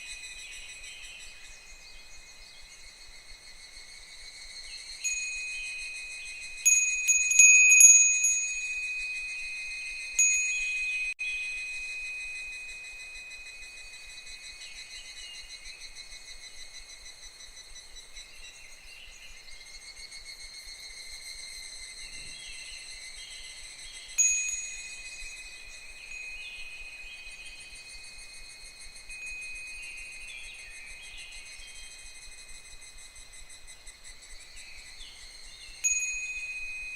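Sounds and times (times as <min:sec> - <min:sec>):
cicadas chorus: 0:00.0 - 0:36.9
wind bell tinkling: 0:04.7 - 0:15.8, 0:23.0 - 0:36.9.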